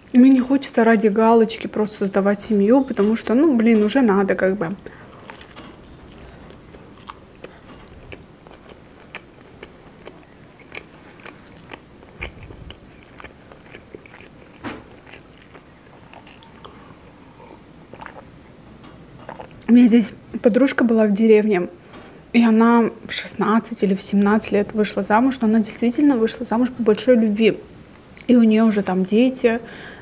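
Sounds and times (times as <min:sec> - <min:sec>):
biting and chewing: 0:04.8 - 0:18.3, 0:19.2 - 0:19.7.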